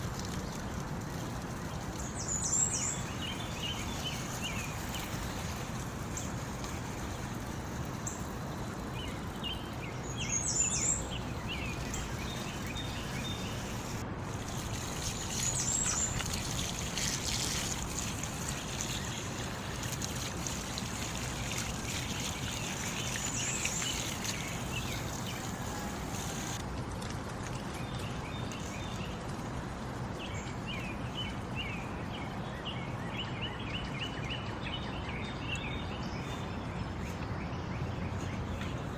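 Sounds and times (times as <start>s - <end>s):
small birds chirping: 0.0s - 26.6s, 27.5s - 38.9s
running water: 0.0s - 32.4s.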